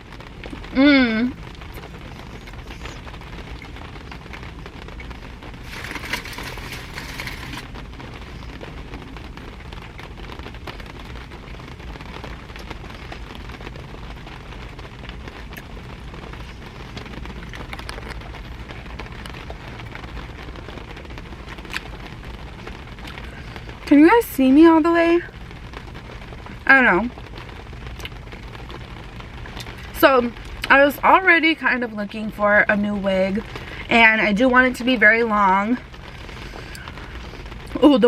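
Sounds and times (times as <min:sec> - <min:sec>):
rain on car roof: 0:00.0 - 0:38.0
rustling noise: 0:01.5 - 0:23.9.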